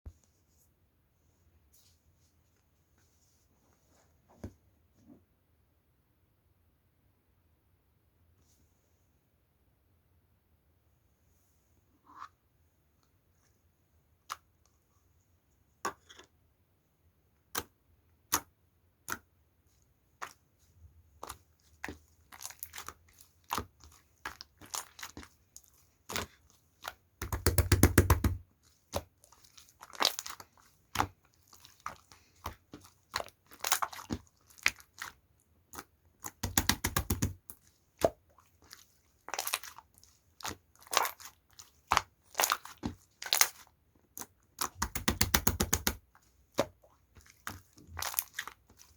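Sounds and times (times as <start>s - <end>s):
slime clicking and popping: 36.3s - 37.4s, 44.6s - 46.0s.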